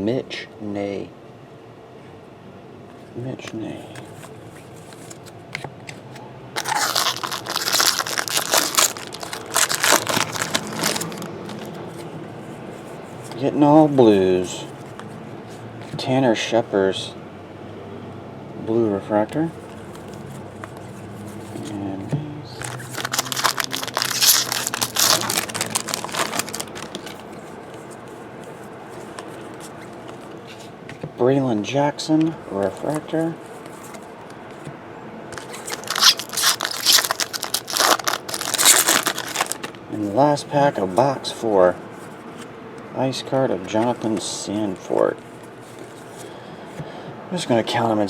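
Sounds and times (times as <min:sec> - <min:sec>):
cards being handled: 0:03.4 - 0:16.0, 0:19.5 - 0:31.1, 0:32.6 - 0:34.7, 0:35.3 - 0:41.2, 0:42.0 - 0:46.9
wrapper crinkling and tearing: 0:06.6 - 0:11.8, 0:22.6 - 0:27.4, 0:35.4 - 0:39.8.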